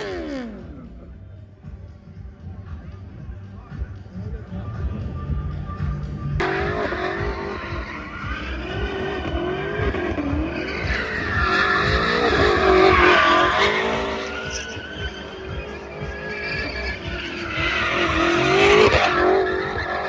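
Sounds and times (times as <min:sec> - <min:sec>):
tyres squealing in a skid: 0:06.4 - 0:20.0.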